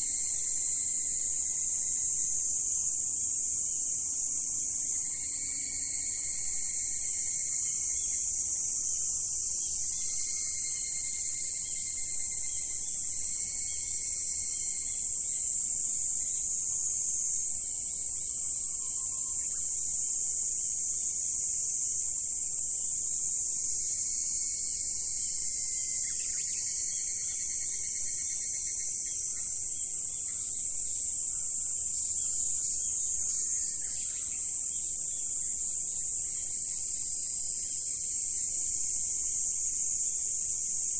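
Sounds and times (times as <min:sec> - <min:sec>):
high-pitched insect chorus: 0:00.0 - 0:40.9
lower soft insect tone: 0:00.0 - 0:40.9.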